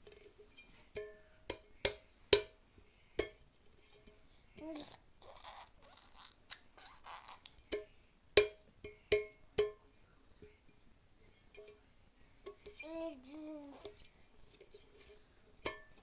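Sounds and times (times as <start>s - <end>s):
metal saucepan clangs: 14.7s - 16.0s.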